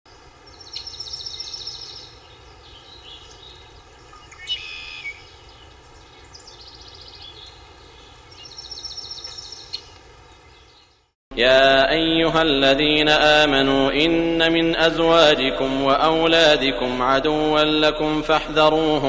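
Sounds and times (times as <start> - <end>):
steady background hiss: 0.1 - 11.1
small birds trilling: 0.1 - 11.2.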